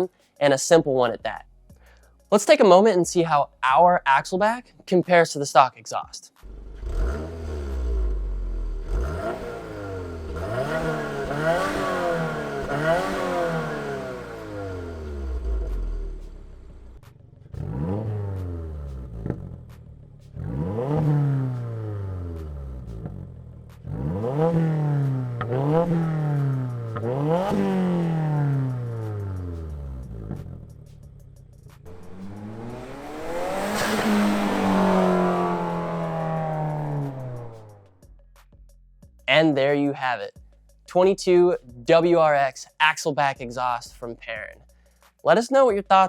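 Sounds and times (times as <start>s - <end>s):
car engine revving: 6.4s - 38.1s.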